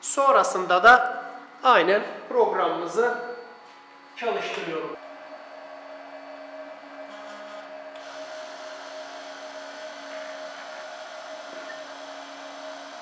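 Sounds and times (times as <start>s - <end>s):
router spindle motor whining: 2.6s - 13.0s.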